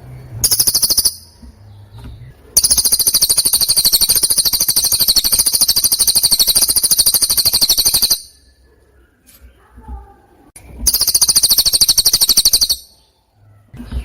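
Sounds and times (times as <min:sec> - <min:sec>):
songbird fast trill: 0:00.4 - 0:01.4, 0:02.6 - 0:08.6, 0:10.8 - 0:13.1.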